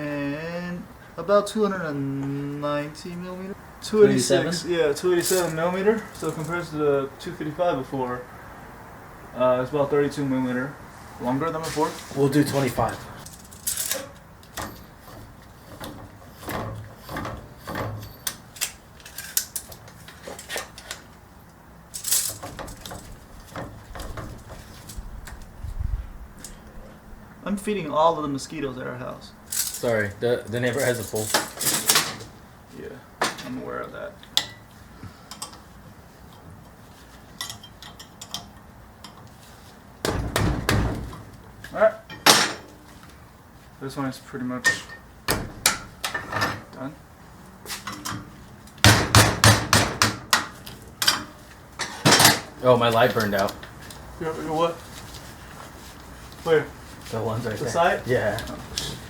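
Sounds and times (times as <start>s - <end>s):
hand tools clicking and clanking: 5.0s - 6.6s, 11.6s - 25.5s, 29.5s - 32.3s, 35.2s - 35.7s, 36.3s - 39.4s, 47.6s - 54.1s
metallic clatter: 13.2s - 21.1s, 21.9s - 25.4s, 29.5s - 32.3s.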